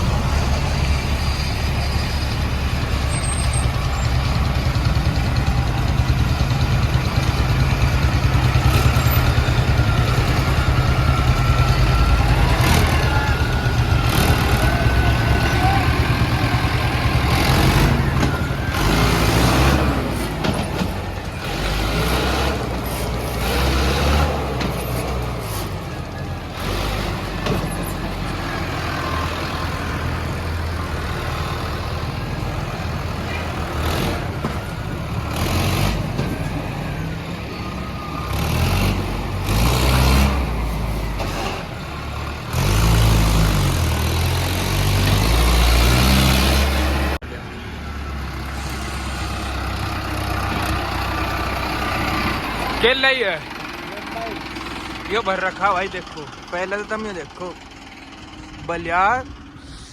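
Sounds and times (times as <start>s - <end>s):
diesel tractor engine running: 0.0s - 59.9s.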